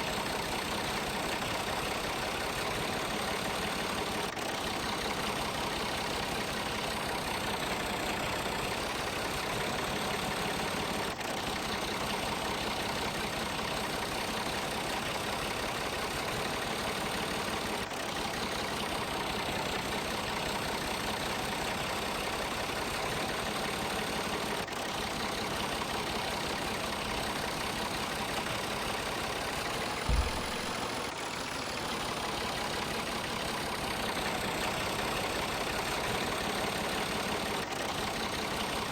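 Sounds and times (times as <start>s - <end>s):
tractor engine idling: 0.0s - 38.9s
low thump: 30.0s - 31.1s.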